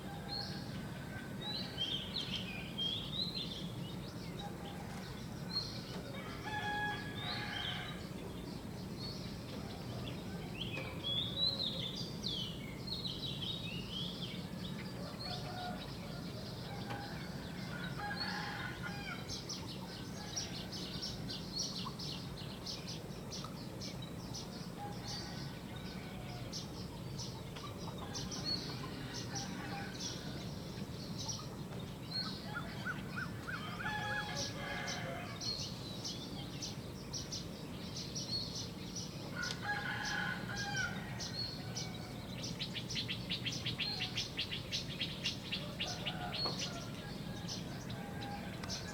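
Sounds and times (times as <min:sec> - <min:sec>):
small birds chirping and trilling: 0:01.5 - 0:48.9
rooster crowing: 0:06.1 - 0:08.0, 0:32.5 - 0:35.5, 0:39.4 - 0:42.3, 0:45.6 - 0:48.9.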